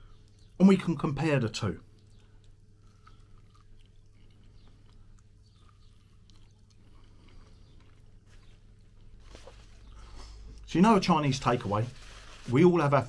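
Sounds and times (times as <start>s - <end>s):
person biting and chewing: 2.0s - 10.4s.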